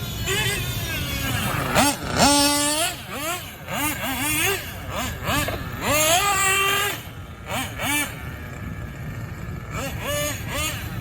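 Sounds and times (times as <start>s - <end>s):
nitro engine revving: 0.0s - 11.0s.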